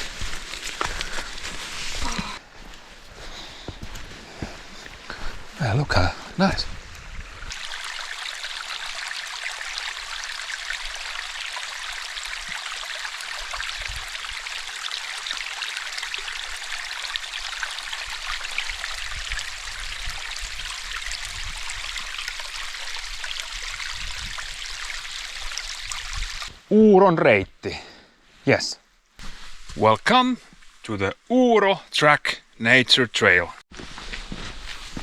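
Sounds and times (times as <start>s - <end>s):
stream water rushing: 4.6s - 26.5s.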